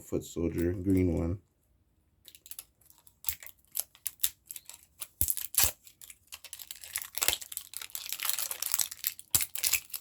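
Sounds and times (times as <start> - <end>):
plastic pieces clicking and knocking: 2.2 - 10.0
plastic packaging crinkling and tearing: 2.3 - 10.0.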